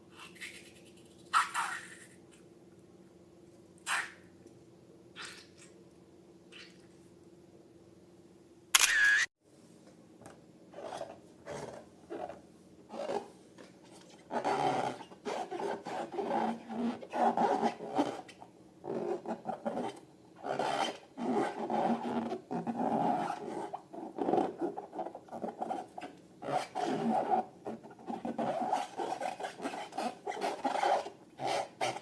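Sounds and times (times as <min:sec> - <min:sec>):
rubbing and squishing balloons: 0:12.9 - 0:32.0.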